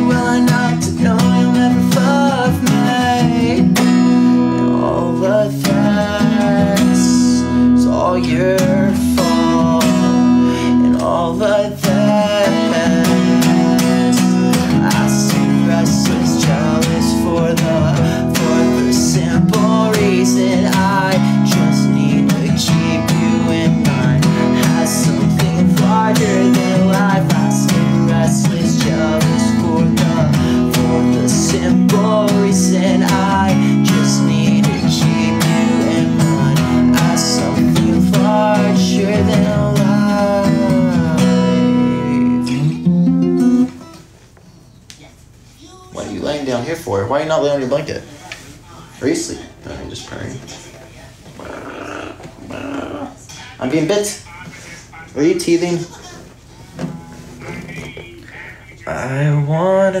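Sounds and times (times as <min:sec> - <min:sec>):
acoustic guitar strumming: 0:00.0 - 0:44.1.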